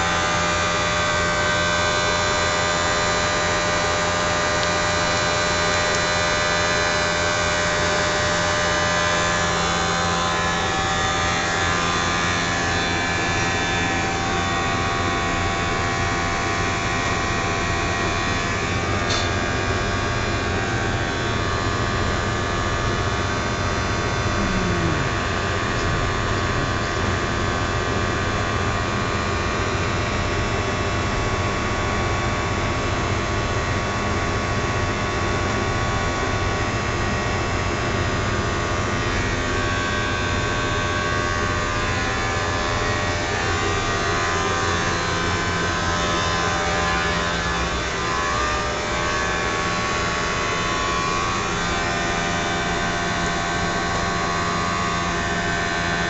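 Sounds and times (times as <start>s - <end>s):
blower motor humming: 19.8s - 28.0s, 39.0s - 56.0s.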